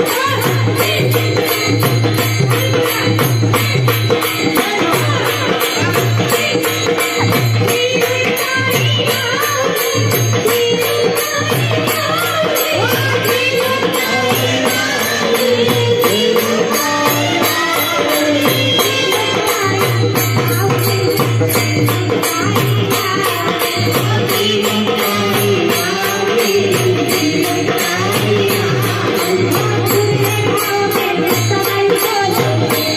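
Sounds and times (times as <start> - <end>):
jingling percussion: 0.0 - 32.9
person singing: 10.5 - 20.8.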